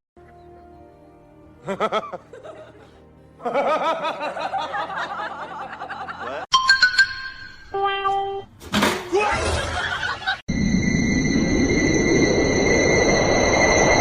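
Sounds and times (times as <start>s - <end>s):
background music: 0.2s - 8.2s
person laughing: 1.6s - 6.4s.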